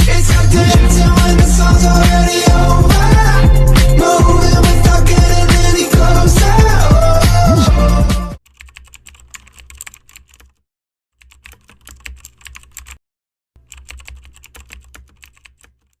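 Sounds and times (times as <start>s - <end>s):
keyboard typing: 8.4s - 10.6s, 11.2s - 13.0s, 13.6s - 16.0s.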